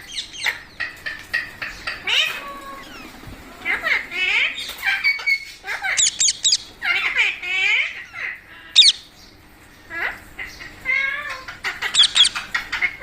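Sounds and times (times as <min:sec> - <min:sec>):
parrot squawking: 0:01.6 - 0:09.1, 0:09.9 - 0:13.0
shrill parrot screeches: 0:05.8 - 0:06.6, 0:11.3 - 0:12.4.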